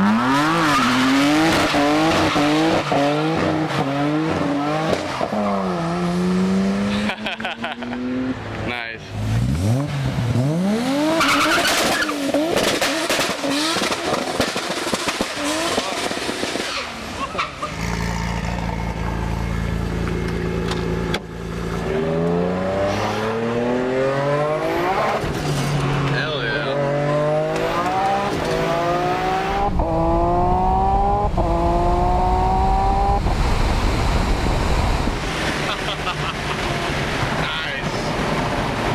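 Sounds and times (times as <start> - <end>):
car engine revving hard: 0.0 - 8.4, 9.2 - 17.1, 21.8 - 38.9.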